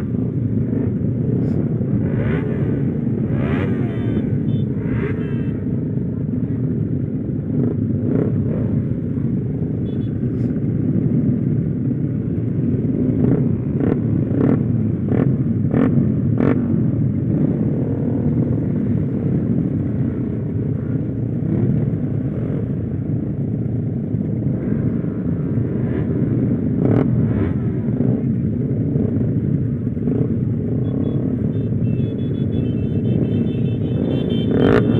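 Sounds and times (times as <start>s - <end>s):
motorcycle engine rumbling: 0.0s - 34.9s.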